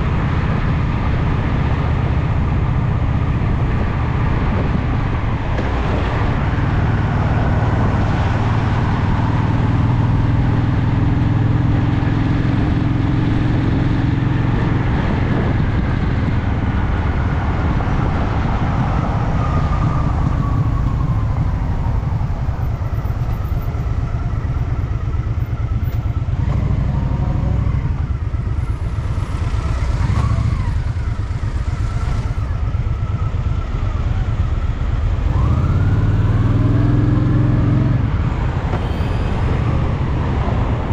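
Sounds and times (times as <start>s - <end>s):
road noise: 0.0s - 40.9s
wind noise: 0.0s - 40.9s
motorcycle engine: 19.4s - 40.9s.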